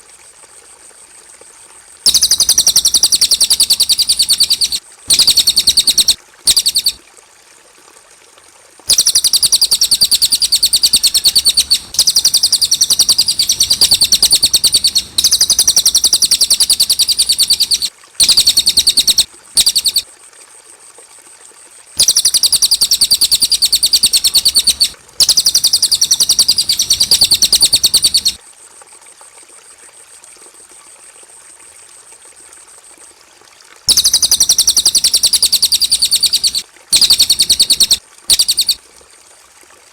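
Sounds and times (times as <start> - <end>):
bird singing rapid chirps: 2.1 - 7.0, 8.9 - 20.0, 22.0 - 28.4, 33.9 - 38.8.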